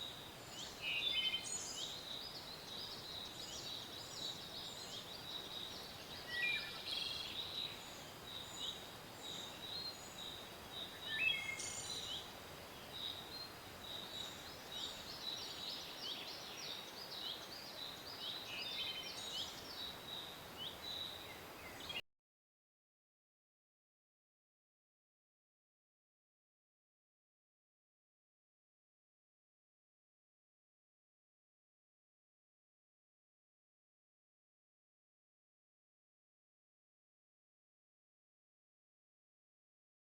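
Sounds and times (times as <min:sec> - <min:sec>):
birds chirping and singing: 0:00.0 - 0:22.0
steady background hiss: 0:00.0 - 0:22.0.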